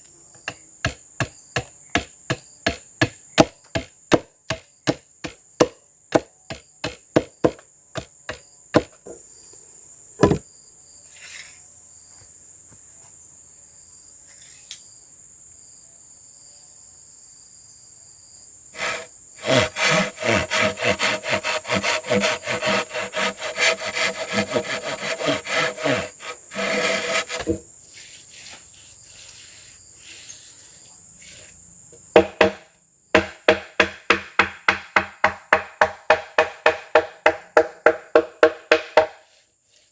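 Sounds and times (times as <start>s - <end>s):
wood chopping knocks: 0.4s - 9.2s, 10.2s - 10.4s, 26.6s - 27.6s, 32.2s - 39.2s
insect buzzing: 17.3s - 33.2s
rasping sawing strokes: 18.8s - 30.4s.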